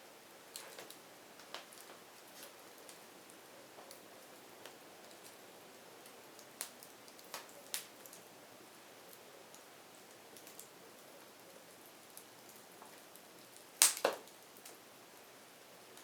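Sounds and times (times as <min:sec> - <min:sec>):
firewood crackling: 0:00.0 - 0:16.0
loud wood snaps: 0:13.8 - 0:14.3.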